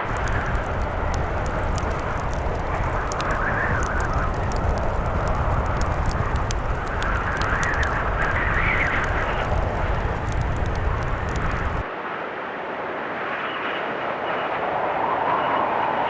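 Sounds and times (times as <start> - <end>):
wood fire crackling: 0.0 - 11.8
blizzard wind rumbling: 0.0 - 11.9
thin soft wind: 0.0 - 12.2.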